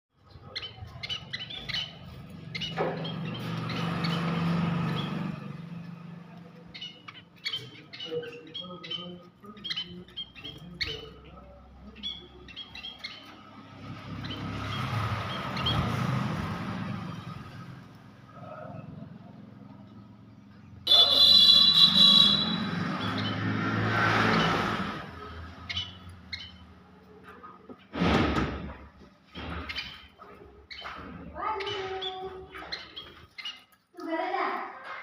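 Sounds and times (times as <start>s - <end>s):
parrot chirping and squawking: 0.4s - 11.2s, 20.9s - 27.0s, 29.6s - 33.9s.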